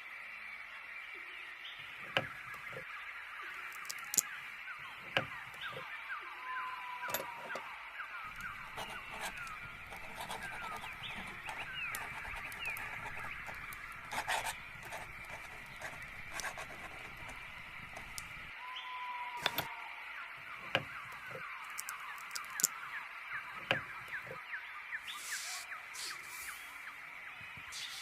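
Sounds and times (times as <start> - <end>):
small birds chirping: 1.4 - 18.6, 19.4 - 28.0
low background hum: 1.8 - 18.6.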